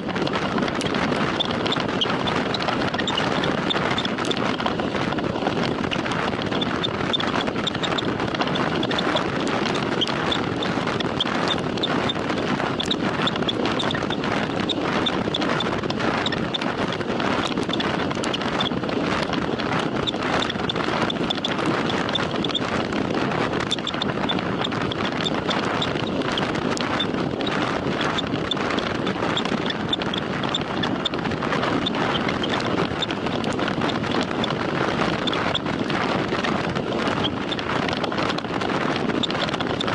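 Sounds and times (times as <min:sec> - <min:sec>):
wind and road noise from bicycle: 0:00.0 - 0:39.9.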